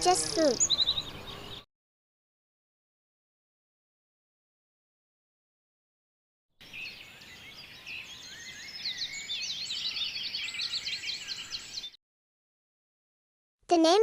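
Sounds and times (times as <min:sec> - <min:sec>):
small birds chirping: 0:00.0 - 0:01.7, 0:06.6 - 0:12.0.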